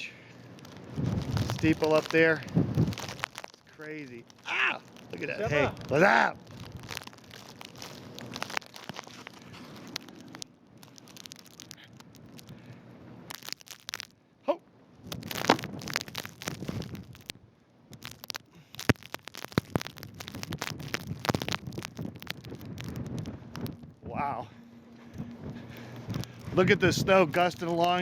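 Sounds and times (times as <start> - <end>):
wind buffeting microphone: 0.9 - 3.1, 19.9 - 27.6
footsteps crunching in snow: 0.9 - 3.5.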